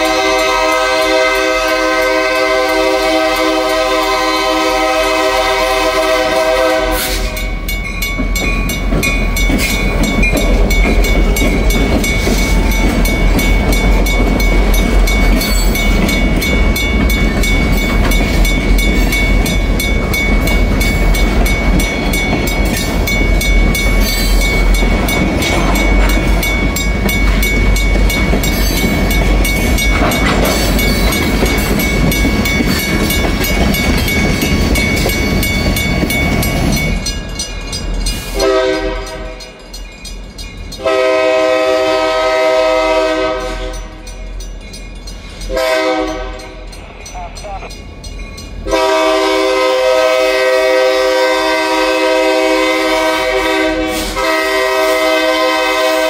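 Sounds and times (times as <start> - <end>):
locomotive horn: 0.0 - 7.4, 38.4 - 39.4, 40.8 - 44.0, 45.5 - 46.6, 48.6 - 56.0
locomotive rumbling past: 0.0 - 56.0
wheels clacking on rails: 0.0 - 56.0.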